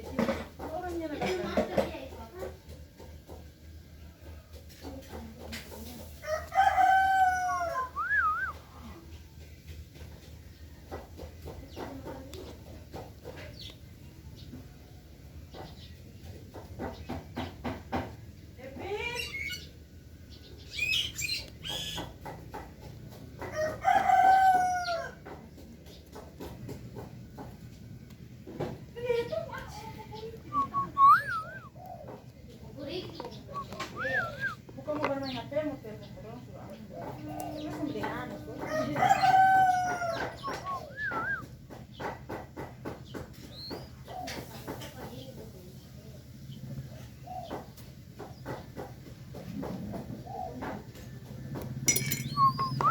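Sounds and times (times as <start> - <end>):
rooster crowing: 6.2 - 8.5, 23.6 - 25.2, 30.5 - 31.7, 38.6 - 41.4
bird calls: 7.3 - 9.1, 29.1 - 45.4, 50.0 - 52.9
wavering whistle: 7.8 - 8.6, 30.5 - 31.7, 33.5 - 34.6, 40.4 - 41.4.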